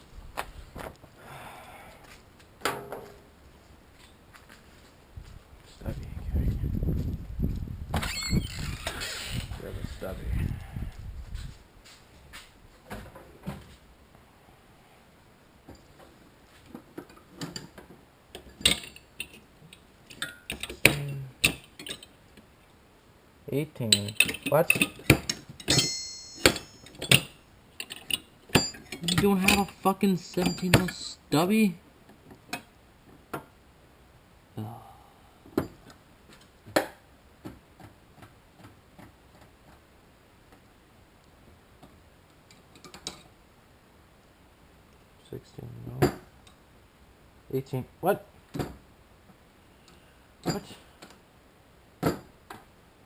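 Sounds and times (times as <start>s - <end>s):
metal hand tools clinking: 23.9s - 31.2s
metal tools clanking: 23.9s - 31.2s.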